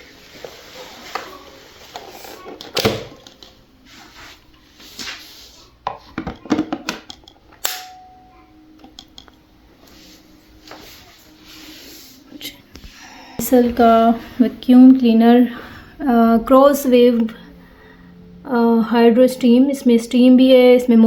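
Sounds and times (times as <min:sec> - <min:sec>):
rustling: 0:00.0 - 0:06.2.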